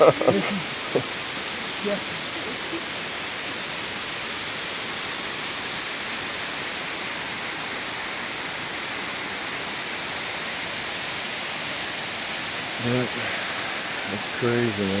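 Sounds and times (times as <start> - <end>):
cascading water rushing: 0.0 - 15.0.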